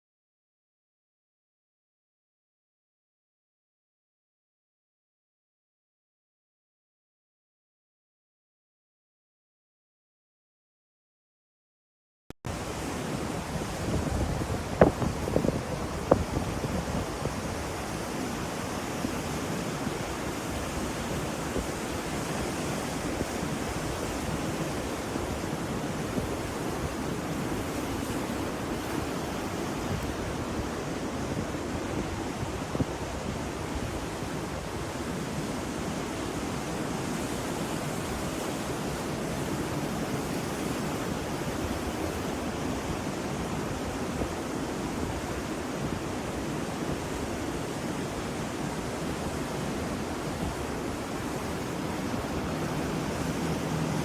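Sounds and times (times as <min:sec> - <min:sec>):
ocean waves washing: 0:12.5 - 0:54.0.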